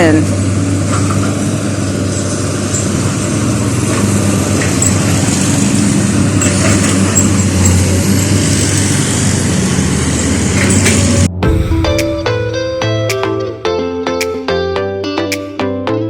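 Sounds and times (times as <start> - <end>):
traffic noise: 0.0 - 11.3
vehicle engines humming: 0.0 - 13.7.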